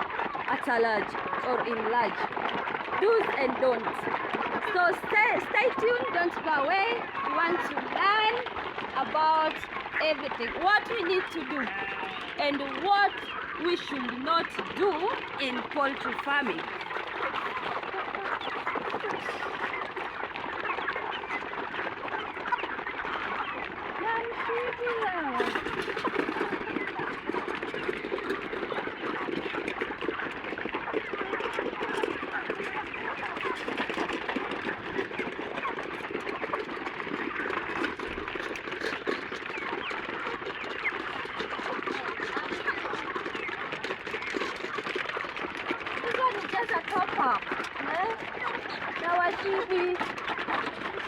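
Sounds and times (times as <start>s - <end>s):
chickens clucking: 0.0s - 51.0s.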